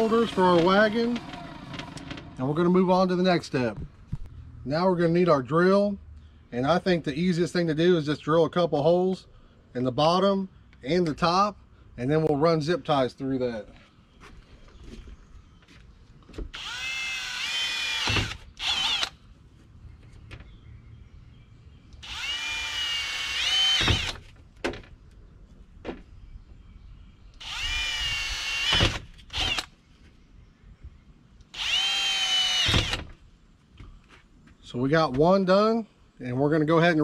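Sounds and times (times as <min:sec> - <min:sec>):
cordless drill whining: 0:00.0 - 0:02.5, 0:16.5 - 0:19.2, 0:22.0 - 0:24.2, 0:27.4 - 0:29.7, 0:31.5 - 0:33.1.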